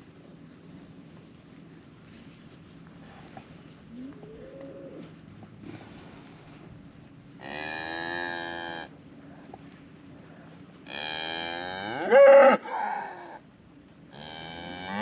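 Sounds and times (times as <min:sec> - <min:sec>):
cattle mooing: 0:10.9 - 0:13.3, 0:14.2 - 0:15.0.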